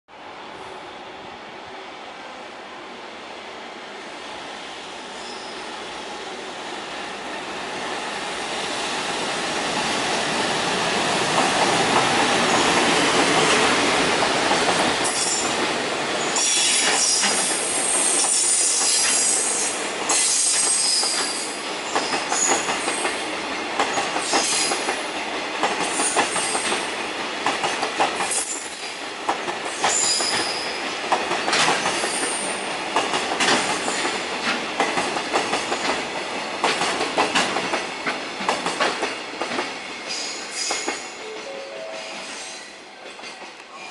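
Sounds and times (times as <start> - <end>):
train passing at speed: 0.1 - 43.9
wheels clacking over rail joints: 29.3 - 41.1.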